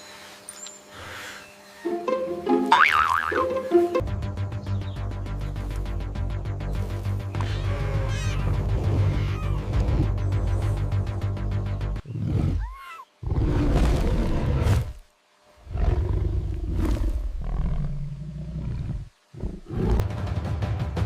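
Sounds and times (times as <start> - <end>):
big cat roaring: 12.0 - 15.0, 15.7 - 20.1.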